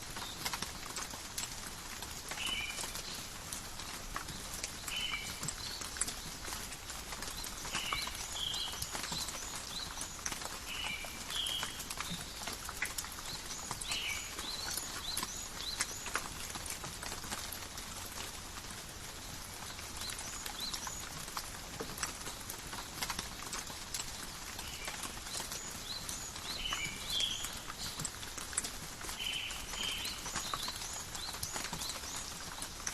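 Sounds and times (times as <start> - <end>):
rain falling with dripping drops: 0.0 - 32.9
birds chirping: 29.2 - 32.9.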